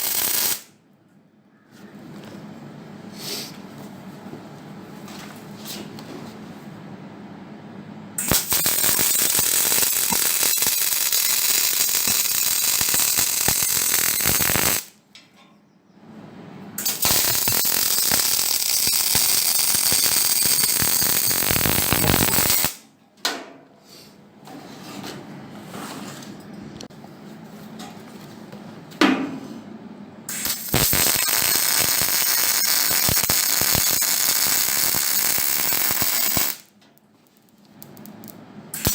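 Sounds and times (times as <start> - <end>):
metalworking tool on sheet steel: 8.2 - 14.9.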